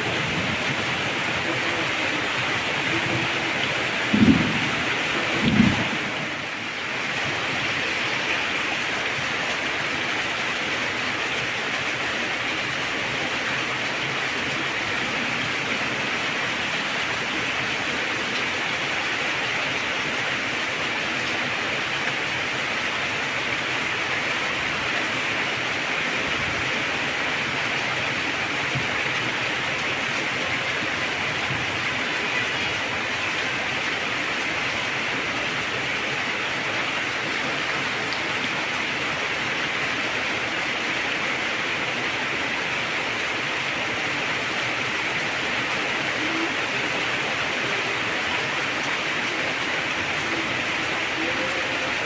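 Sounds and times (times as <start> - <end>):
heavy rain falling: 0.0 - 52.0
low rumble of thunder: 2.9 - 6.5.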